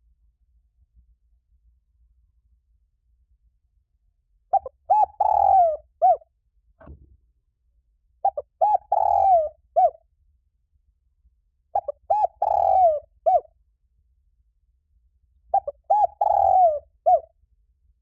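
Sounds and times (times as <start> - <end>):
dove cooing: 4.5 - 6.2, 8.2 - 10.0, 11.8 - 13.5, 15.5 - 17.3.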